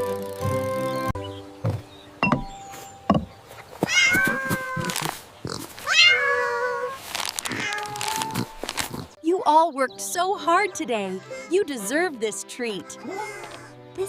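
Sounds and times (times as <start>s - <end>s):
cat meowing: 3.9s - 5.1s, 5.8s - 8.6s.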